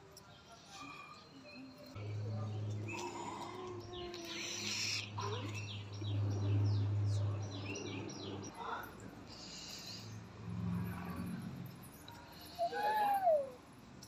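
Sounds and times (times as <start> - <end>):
birds chirping: 0.9 - 8.6.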